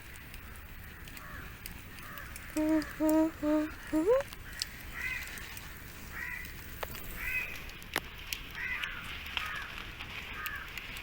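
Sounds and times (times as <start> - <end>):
sharp snaps: 1.0 - 5.4
bird calling: 1.1 - 5.3.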